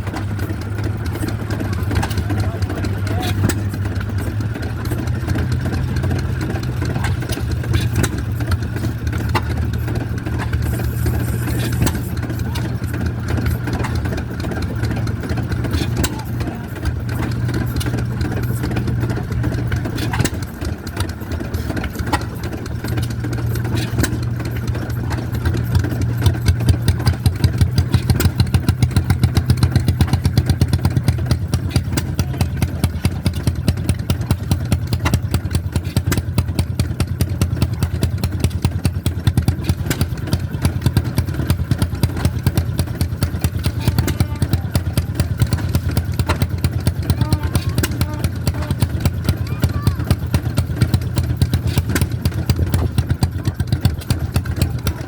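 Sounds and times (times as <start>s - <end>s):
stationary gas engines running: 0.0s - 55.0s.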